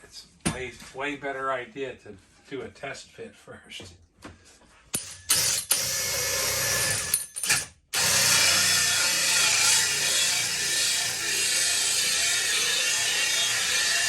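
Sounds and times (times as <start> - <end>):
power drill with hole saw cutting wood: 5.0 - 14.0.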